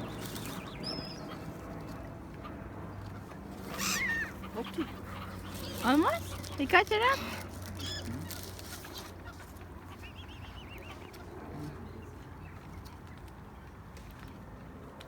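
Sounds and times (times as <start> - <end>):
low background hum: 0.0 - 15.0
bird giving short high calls: 3.7 - 4.9, 7.6 - 8.6.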